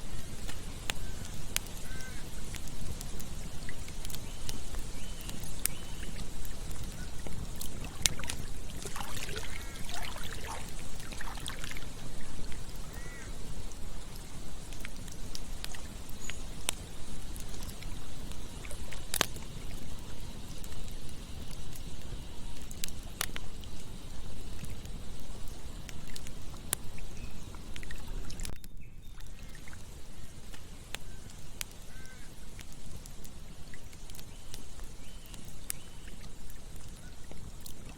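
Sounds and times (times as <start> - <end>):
campfire crackling and popping: 0.0 - 37.9
river water flowing: 4.8 - 15.9.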